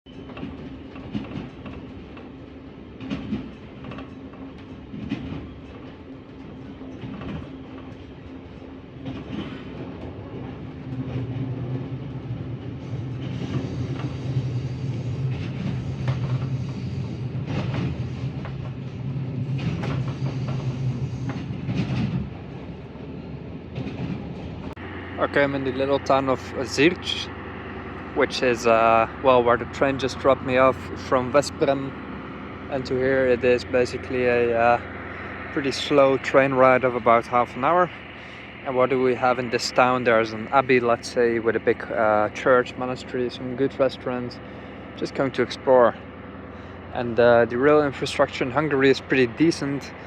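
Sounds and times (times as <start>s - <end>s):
wheels clicking over track: 0.1s - 14.4s
train engine hum: 0.1s - 50.0s
low drone: 24.8s - 45.5s.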